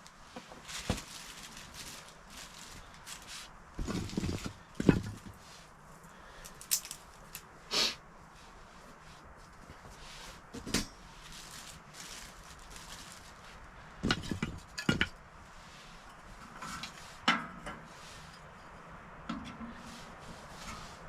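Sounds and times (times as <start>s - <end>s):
camp gear knocks and clinks: 3.8s - 5.4s, 14.0s - 15.2s.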